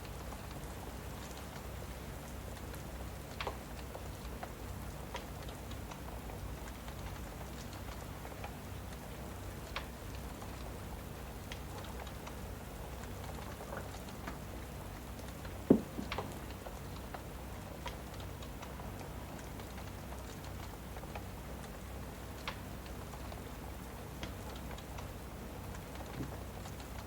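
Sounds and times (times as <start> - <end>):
rain: 0.0 - 27.0
wood fire crackling: 0.0 - 27.0
loud fire pop: 15.7 - 16.2.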